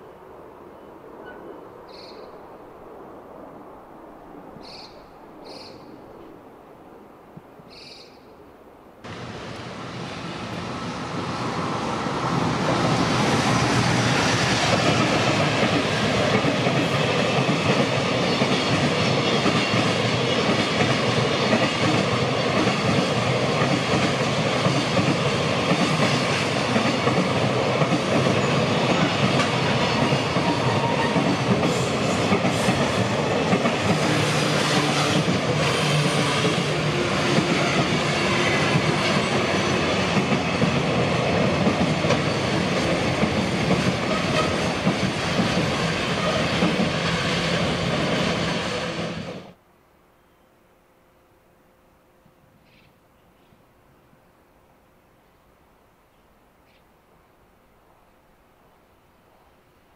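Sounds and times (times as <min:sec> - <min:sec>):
train wheels rumbling on rail: 0:09.1 - 0:49.6.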